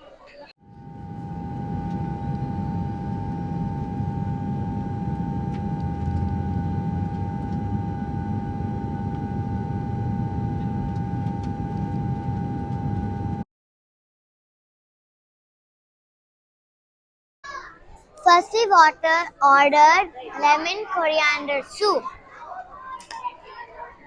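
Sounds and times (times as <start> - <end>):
steady mechanical hum: 0.6 - 13.4.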